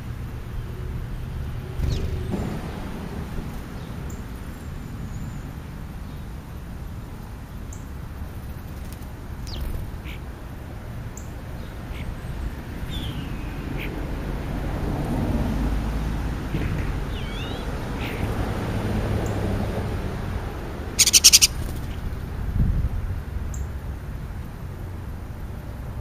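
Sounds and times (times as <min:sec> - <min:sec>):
high bird chirps: 0:17.1 - 0:18.3, 0:21.0 - 0:22.0.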